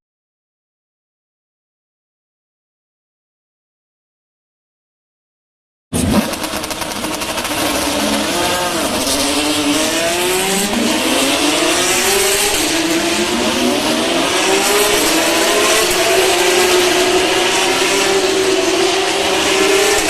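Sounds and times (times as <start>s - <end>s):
race car engines passing: 6.0s - 20.0s.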